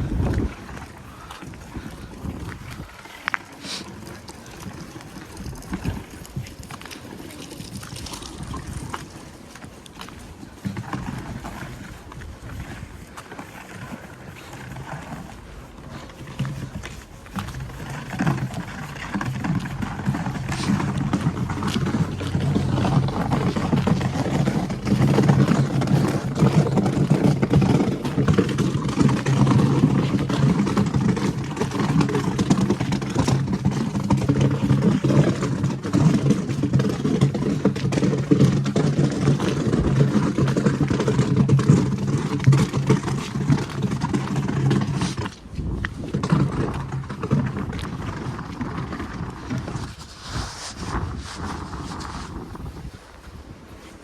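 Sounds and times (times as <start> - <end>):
engine running steadily: 0.0 - 50.0
wind: 0.0 - 54.0.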